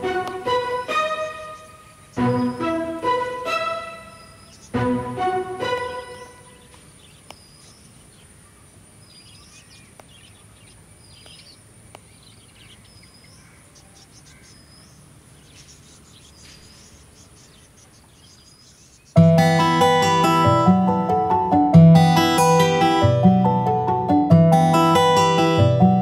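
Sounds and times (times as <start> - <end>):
bird chirping: 0.0 - 5.0, 5.6 - 20.0
music: 0.0 - 6.6, 19.2 - 26.0.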